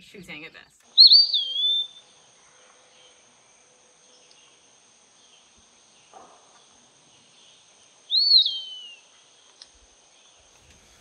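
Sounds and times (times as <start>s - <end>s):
bird whistled song: 0.9s - 2.2s, 8.1s - 9.2s.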